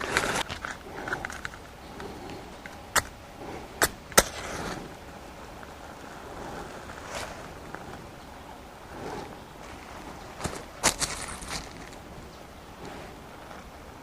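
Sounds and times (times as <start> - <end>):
faint rustling: 0.0 - 13.8.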